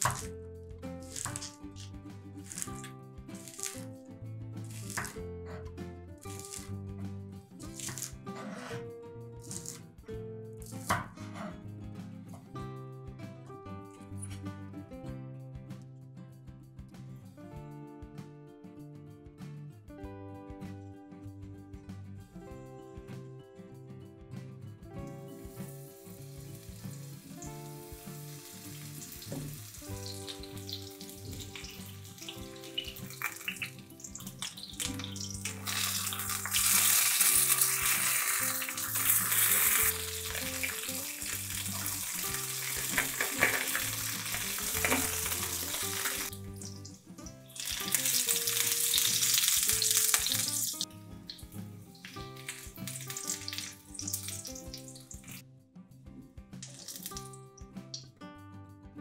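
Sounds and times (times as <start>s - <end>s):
soft background music: 0.0s - 59.0s
vegetables sizzling in oil: 2.4s - 3.9s, 6.2s - 6.7s, 25.3s - 55.4s.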